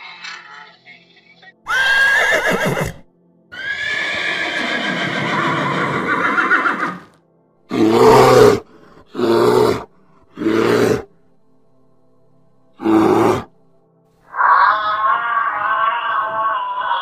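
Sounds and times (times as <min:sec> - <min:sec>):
horse neighing: 0:01.7 - 0:07.1, 0:07.7 - 0:08.6, 0:09.2 - 0:11.1, 0:12.8 - 0:13.5, 0:14.3 - 0:17.0.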